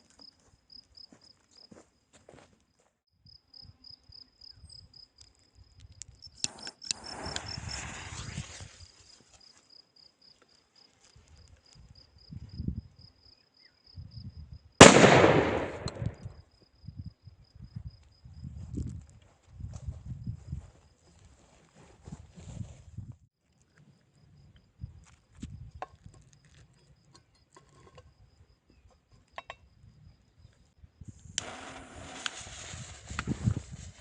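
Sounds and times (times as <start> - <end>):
crickets chirping: 0.0 - 2.1, 2.7 - 19.0, 23.6 - 34.0
firecracker fuse hissing: 6.5 - 8.9, 31.2 - 34.0
loud firecracker bang: 14.8 - 16.2.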